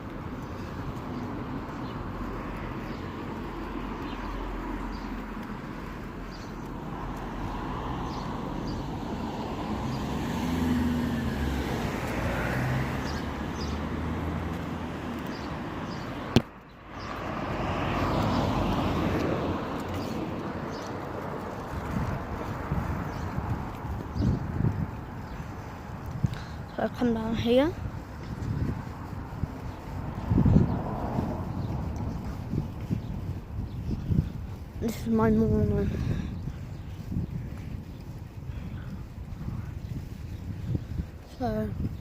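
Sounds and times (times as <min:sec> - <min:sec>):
road traffic noise: 0:00.0 - 0:42.0
wind on microphone: 0:17.1 - 0:42.0.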